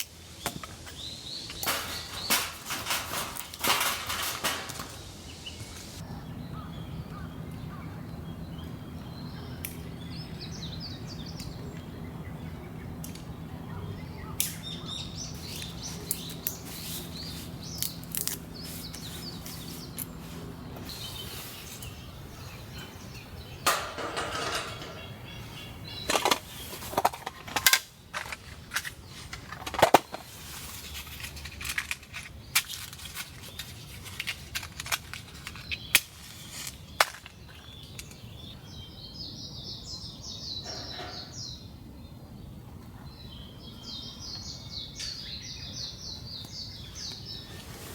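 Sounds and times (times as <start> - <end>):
birds chirping: 0.0 - 31.5, 35.1 - 47.9
sharp knocks and cracks: 1.5 - 6.0.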